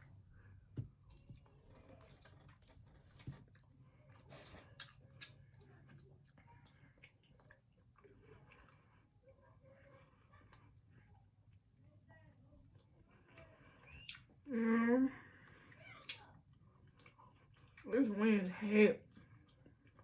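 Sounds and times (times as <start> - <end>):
chewing and biting: 0.7 - 9.1, 15.7 - 17.9.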